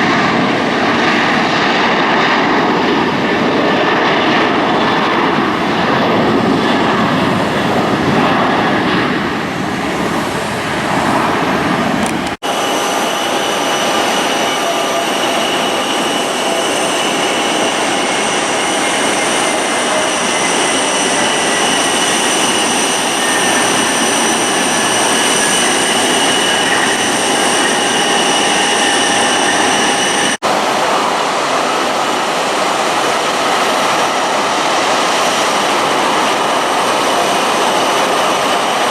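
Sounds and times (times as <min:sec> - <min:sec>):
jet engines roaring: 0:00.0 - 0:38.9
high whining engine tones: 0:03.0 - 0:31.4
falling whistle: 0:13.7 - 0:30.4.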